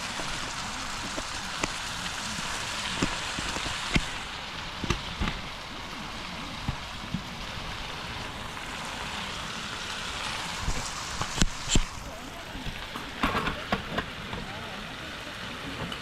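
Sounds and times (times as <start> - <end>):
intestines sizzling in hot fat: 0.0 - 16.0
fat popping and spitting: 10.6 - 12.0.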